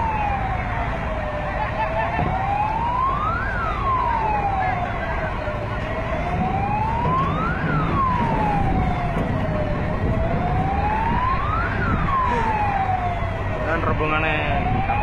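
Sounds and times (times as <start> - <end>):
emergency vehicle siren wailing: 0.0 - 15.0.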